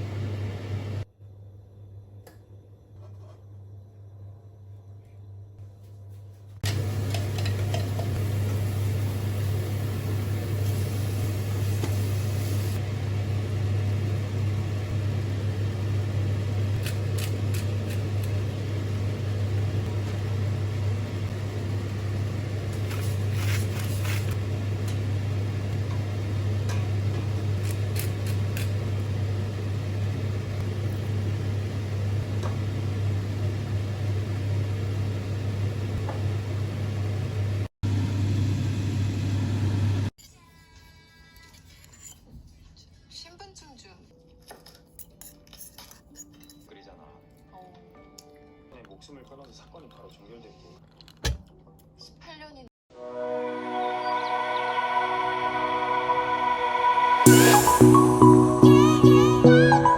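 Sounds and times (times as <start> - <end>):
low mechanical hum: 0.0 - 42.8.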